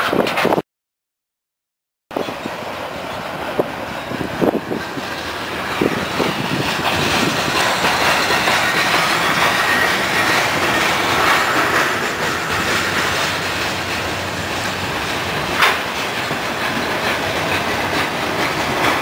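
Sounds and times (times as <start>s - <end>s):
freight train wheels clacking: 2.1s - 19.0s
wheel squeal: 4.0s - 17.8s.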